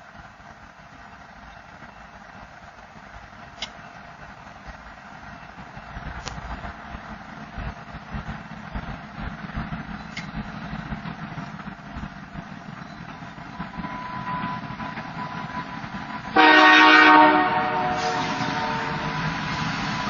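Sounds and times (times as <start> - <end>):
diesel locomotive rumbling: 0.0 - 20.0
locomotive air horn: 16.3 - 20.0.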